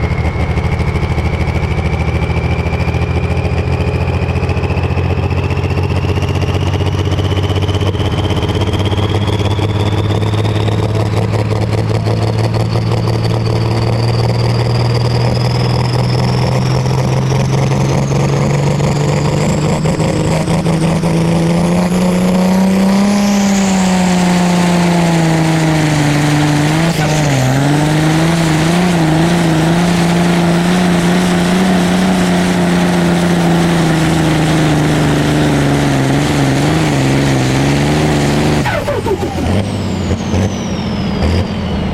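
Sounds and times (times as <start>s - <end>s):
tractor diesel engine at high revs: 0.0s - 41.9s.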